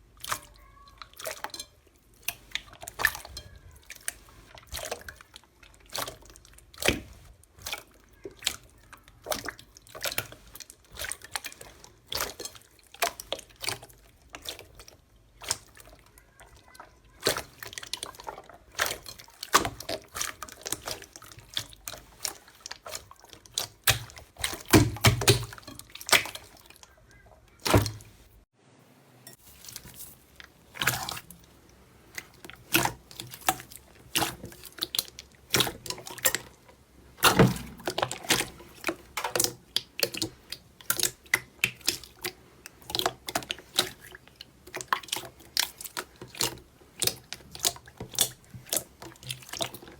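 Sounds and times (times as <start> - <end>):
slime squished wet clicks: 18.8 - 26.7, 37.2 - 49.8.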